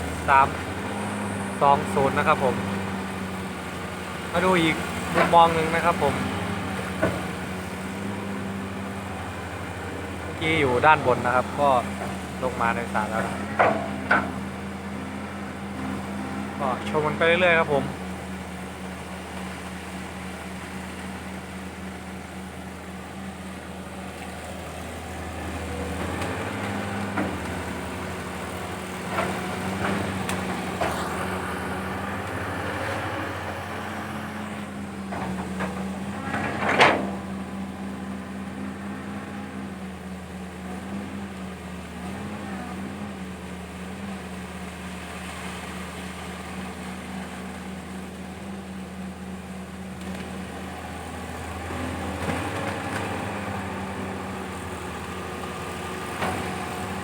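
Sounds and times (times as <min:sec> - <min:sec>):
excavator diesel engine: 0:00.0 - 0:57.0
metallic clanks of bucket: 0:13.4 - 0:14.4, 0:35.2 - 0:37.2.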